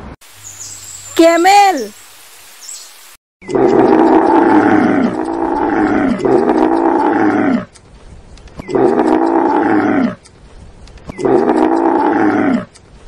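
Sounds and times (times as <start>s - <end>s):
camel groaning: 3.5s - 7.7s, 8.6s - 10.2s, 11.1s - 12.8s.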